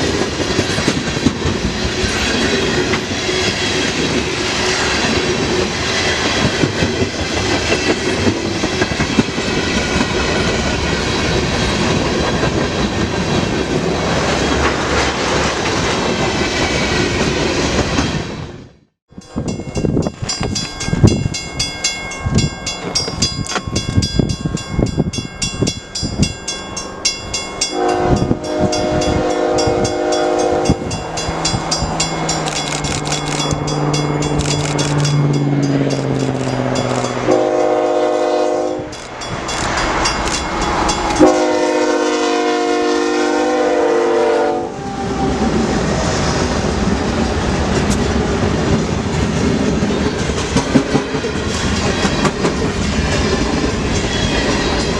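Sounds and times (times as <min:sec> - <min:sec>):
train wheels clacking over rail: 0:00.0 - 0:18.2, 0:47.0 - 0:54.9
passing train rumble: 0:00.0 - 0:54.9
locomotive air horn blasts: 0:27.7 - 0:31.0, 0:37.2 - 0:39.0, 0:41.1 - 0:45.6.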